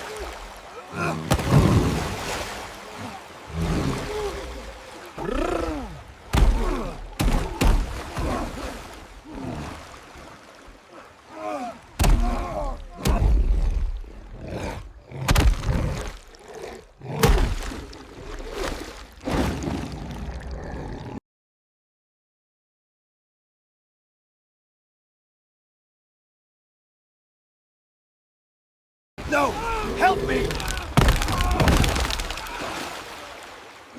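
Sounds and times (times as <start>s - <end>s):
cries or growls: 3.0s - 9.8s, 11.0s - 13.8s, 29.3s - 32.8s.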